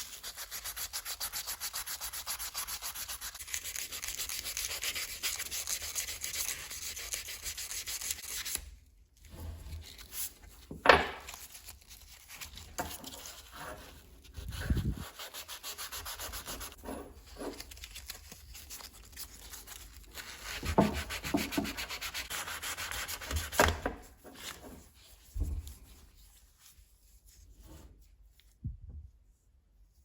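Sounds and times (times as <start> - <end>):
sandpaper rubbing on metal: 0.0 - 8.6, 11.7 - 17.8, 20.2 - 23.6.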